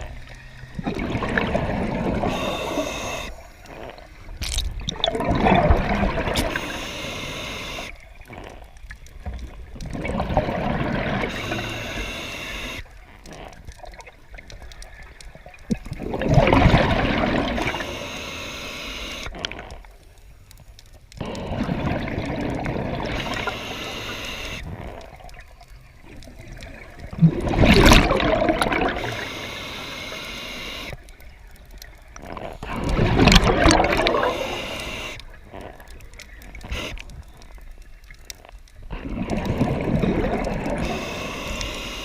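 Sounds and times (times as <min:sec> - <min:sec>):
diver exhaling bubbles underwater: 0:00.8 - 0:03.3, 0:04.8 - 0:06.8, 0:09.8 - 0:12.0, 0:15.7 - 0:17.8, 0:21.2 - 0:23.6, 0:27.1 - 0:29.3, 0:32.5 - 0:35.0, 0:38.9 - 0:41.0.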